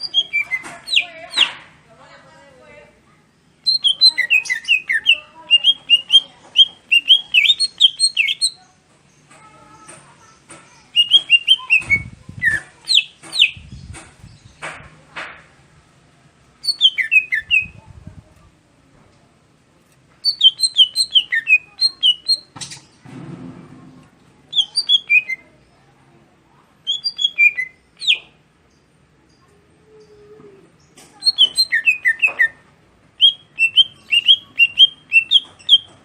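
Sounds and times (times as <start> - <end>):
bird singing high chirping phrases: 0.0 - 1.6, 3.2 - 14.6, 16.6 - 17.9, 20.2 - 23.0, 24.5 - 36.0.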